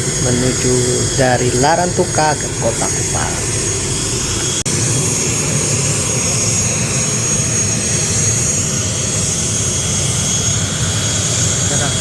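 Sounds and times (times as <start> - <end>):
turboprop engine running: 0.0 - 12.0.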